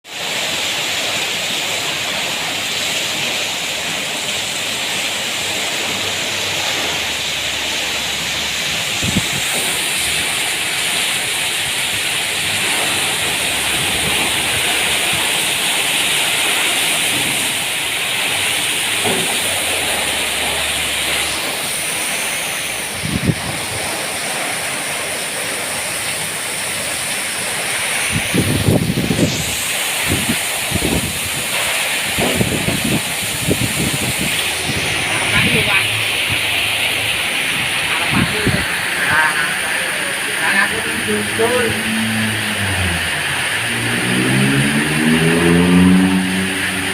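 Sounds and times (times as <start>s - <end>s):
heavy rain pouring: 0.0s - 46.9s
wind bumps: 28.1s - 31.4s, 32.1s - 36.5s.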